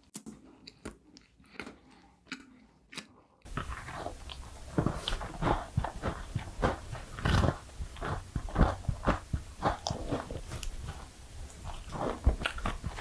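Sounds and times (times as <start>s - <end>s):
person biting and chewing: 0.1s - 13.0s
steady hiss: 3.5s - 13.0s.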